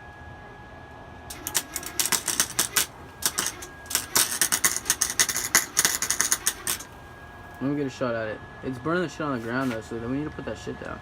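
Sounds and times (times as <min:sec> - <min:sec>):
welder arc crackling: 0:01.3 - 0:07.6.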